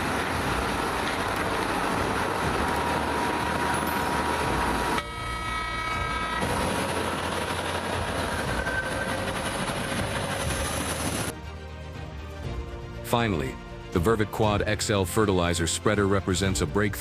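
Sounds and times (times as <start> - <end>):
heavy vehicle engine running: 0.0 - 11.3.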